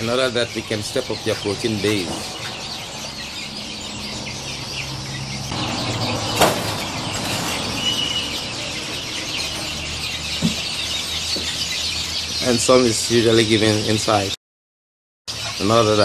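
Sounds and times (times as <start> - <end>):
chickens clucking and cheeping: 0.0 - 14.4, 15.3 - 16.0.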